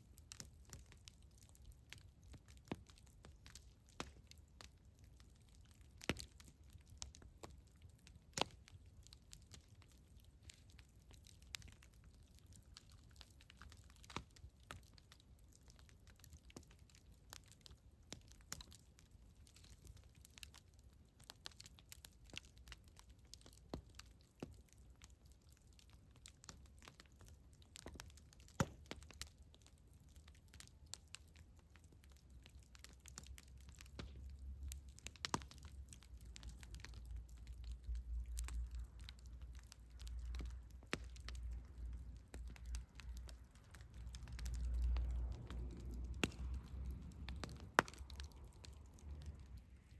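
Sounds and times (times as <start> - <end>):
campfire crackling: 0.0 - 49.9
low rumble: 43.9 - 49.9.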